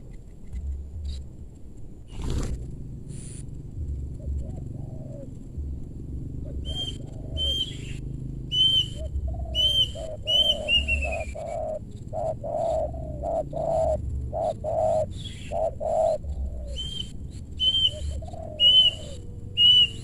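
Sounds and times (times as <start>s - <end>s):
dove cooing: 2.1s - 20.0s
high bird chirps: 6.6s - 20.0s.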